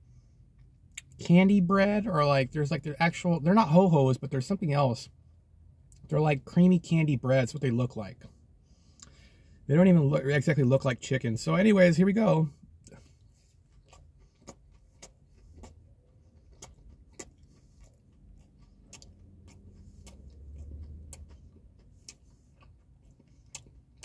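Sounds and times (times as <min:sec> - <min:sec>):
low faint hum: 0:00.0 - 0:24.0
quiet chewing: 0:12.5 - 0:24.0.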